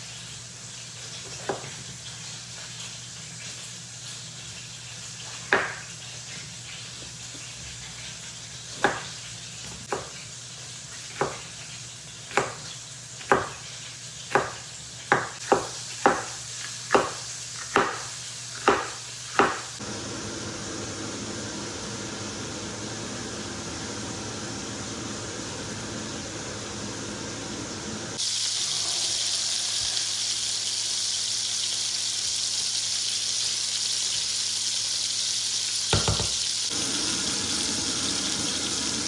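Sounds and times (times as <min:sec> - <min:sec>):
sharp ringing kitchen taps: 0:35.9 - 0:36.4
steady hiss: 0:36.0 - 0:39.0.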